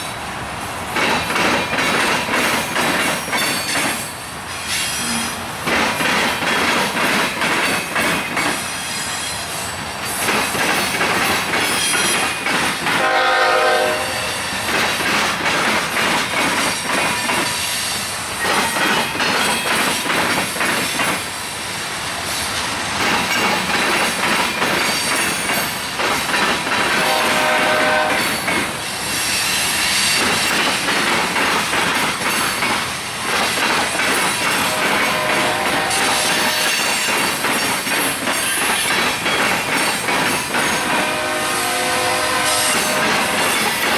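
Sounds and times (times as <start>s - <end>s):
train wheels clattering and squealing: 0.0s - 13.4s, 14.1s - 41.3s, 42.4s - 43.9s
locomotive horn: 13.0s - 14.4s, 27.0s - 28.4s, 34.6s - 36.9s, 40.7s - 43.6s.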